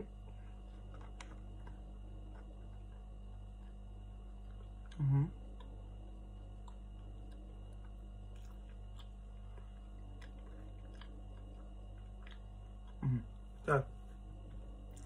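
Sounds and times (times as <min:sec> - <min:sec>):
electrical hum: 0:00.0 - 0:15.0
person chewing: 0:00.3 - 0:13.5, 0:14.1 - 0:15.0
person humming: 0:05.0 - 0:05.3, 0:13.0 - 0:13.8.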